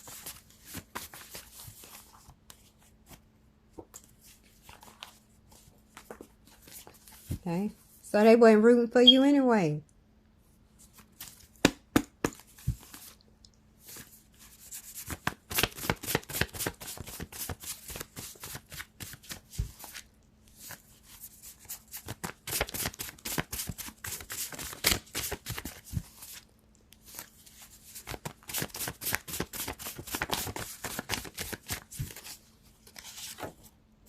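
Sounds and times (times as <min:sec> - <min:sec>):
cards being shuffled: 0:13.9 - 0:20.0, 0:21.9 - 0:26.4, 0:27.0 - 0:33.6.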